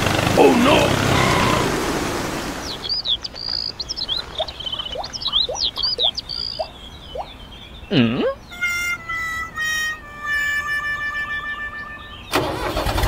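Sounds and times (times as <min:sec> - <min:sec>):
small birds chirping: 0:02.4 - 0:10.6.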